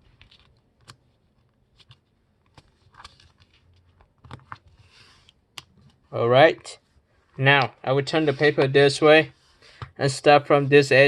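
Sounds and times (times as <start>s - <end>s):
paper rustling and folding: 0.0s - 6.1s.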